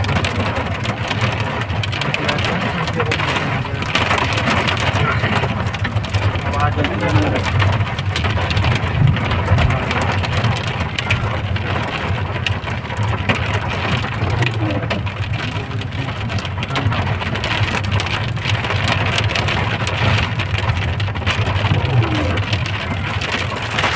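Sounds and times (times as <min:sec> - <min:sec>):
heavy rain and hail: 0:00.0 - 0:23.9
low rumble: 0:00.0 - 0:23.9.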